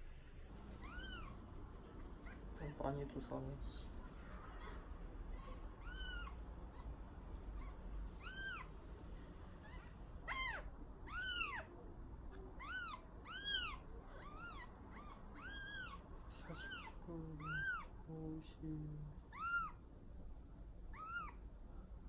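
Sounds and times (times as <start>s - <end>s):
kitten meowing: 0.8s - 1.4s, 5.4s - 6.9s, 7.6s - 8.7s, 9.6s - 11.7s, 12.6s - 17.9s, 19.3s - 19.8s, 20.9s - 21.4s.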